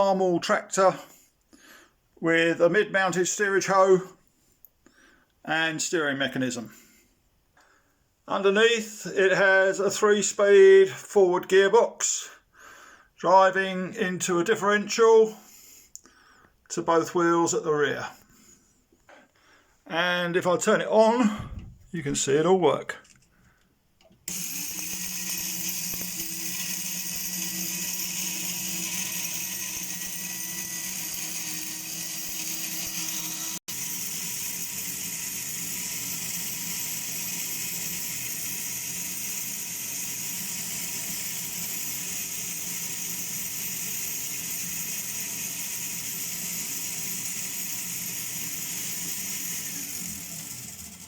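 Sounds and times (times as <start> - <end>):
whirring whine of meshing gears: 24.3 - 51.0.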